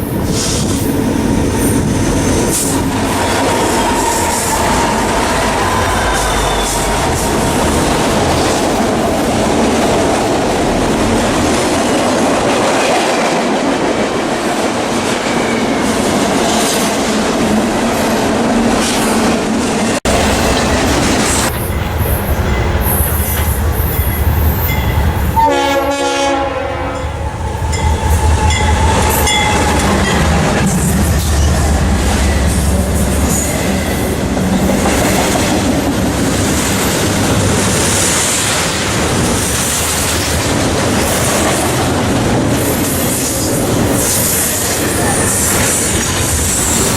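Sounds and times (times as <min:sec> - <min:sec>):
locomotive engines rumbling: 0:00.0 - 0:12.6, 0:19.8 - 0:46.9
freight train clattering on track: 0:00.0 - 0:46.9
locomotive air horn blast: 0:25.3 - 0:30.0.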